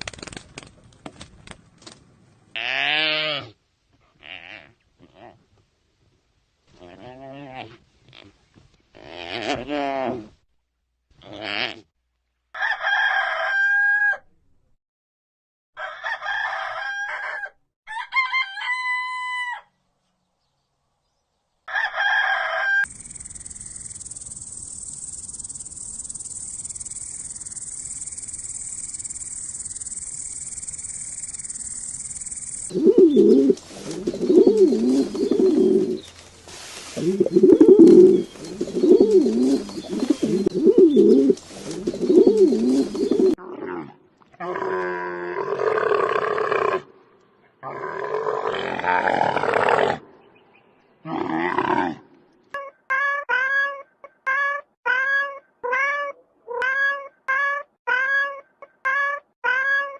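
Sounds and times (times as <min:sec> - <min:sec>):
rooster crowing: 0:12.6 - 0:14.2, 0:15.8 - 0:19.8, 0:21.7 - 0:22.9
pigeons cooing: 0:32.7 - 0:36.1, 0:37.0 - 0:43.4.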